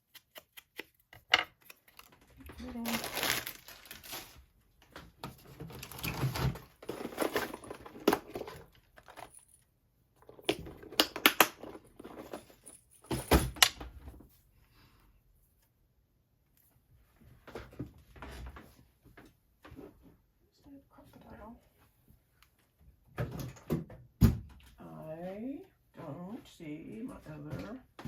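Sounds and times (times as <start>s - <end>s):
paper rustling: 1.5s - 4.5s.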